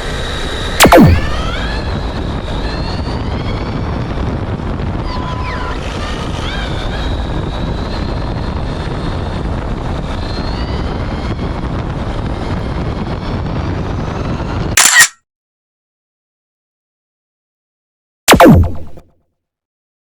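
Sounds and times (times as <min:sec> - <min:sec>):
wind and tyre noise: 0:01.5 - 0:14.8.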